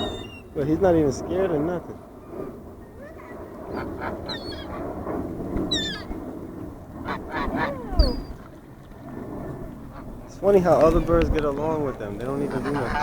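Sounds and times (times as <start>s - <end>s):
ducks and gulls calling: 0.0s - 0.5s, 2.2s - 5.0s, 5.7s - 6.2s, 7.0s - 8.5s, 9.9s - 13.0s.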